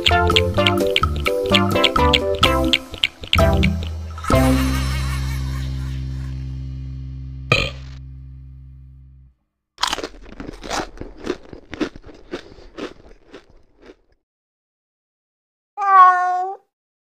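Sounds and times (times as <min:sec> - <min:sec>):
cat crunching food: 0:00.0 - 0:04.0, 0:09.8 - 0:14.1
cat meowing: 0:15.8 - 0:16.7.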